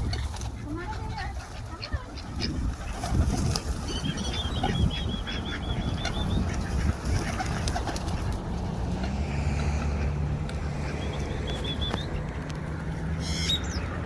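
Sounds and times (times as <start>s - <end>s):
high bird trill: 3.8s - 6.9s, 10.9s - 12.2s, 13.1s - 14.0s.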